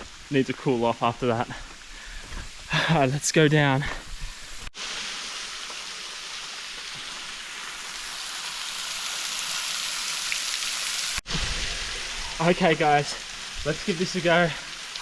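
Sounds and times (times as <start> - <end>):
waterfall splashing: 4.8 - 15.0.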